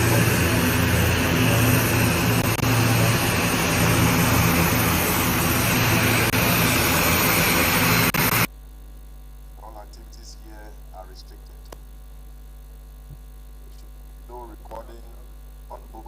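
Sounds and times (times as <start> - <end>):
aircraft engines droning: 0.0 - 8.5.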